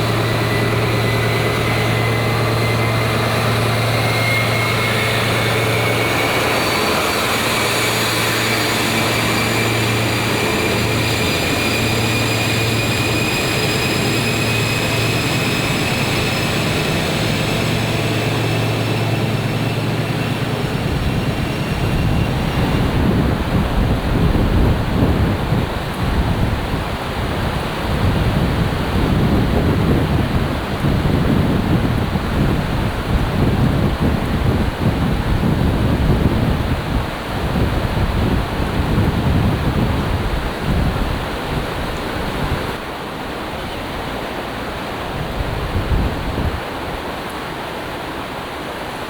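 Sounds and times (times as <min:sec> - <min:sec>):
high whine rising in pitch: 0:00.0 - 0:24.5
diesel train drone: 0:00.0 - 0:49.0
gusty wind and sea rumble: 0:00.0 - 0:49.0
rushing noise: 0:00.0 - 0:49.0.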